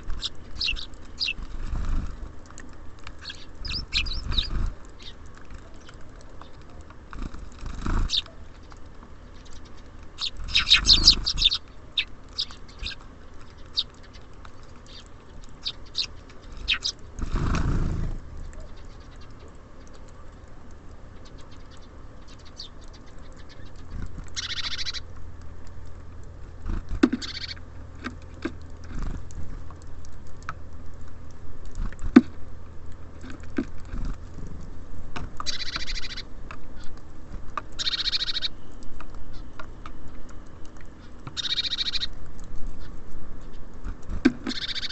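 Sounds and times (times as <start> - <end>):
small birds chirping: 0.0 - 30.4, 35.4 - 44.9
rustle: 0.0 - 44.9
small taps and clicks: 2.4 - 7.3, 25.1 - 37.8.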